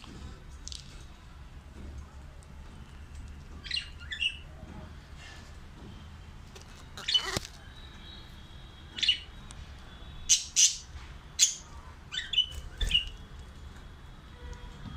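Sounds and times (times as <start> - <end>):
budgerigars chirping and squawking: 7.0 - 7.5, 10.3 - 11.6.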